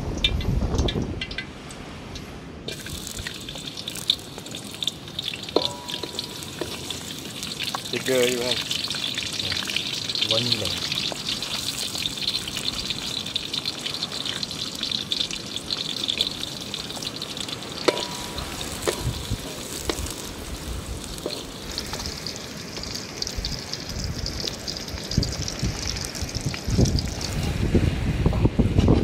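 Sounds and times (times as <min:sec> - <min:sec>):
garlic sizzling in hot oil: 0:02.7 - 0:27.7
wooden spatula knocking on wok: 0:05.6 - 0:06.8, 0:17.8 - 0:19.2.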